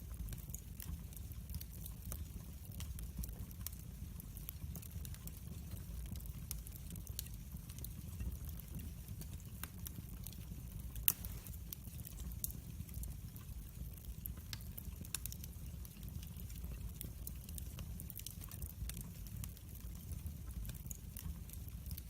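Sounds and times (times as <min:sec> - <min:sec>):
log fire crackling: 0:00.0 - 0:22.0
sharp pops of fire: 0:11.0 - 0:12.6.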